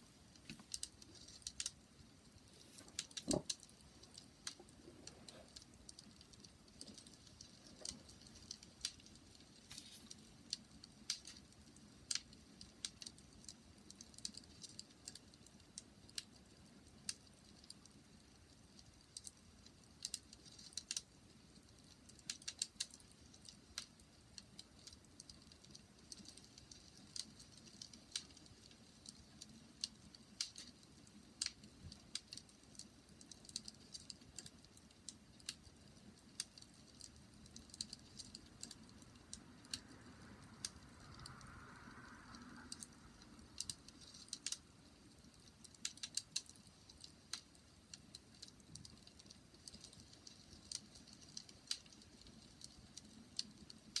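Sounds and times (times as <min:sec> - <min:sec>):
soft hiss: 0:00.0 - 0:54.0
wood fire crackling: 0:00.0 - 0:54.0.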